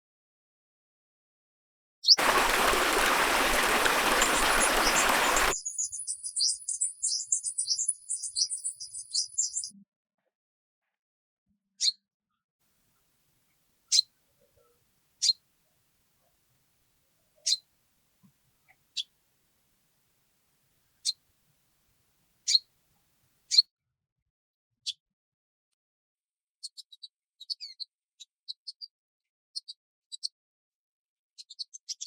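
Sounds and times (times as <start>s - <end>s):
high rapid bird song: 2.2s - 9.7s
short bird chirps: 2.2s - 9.7s.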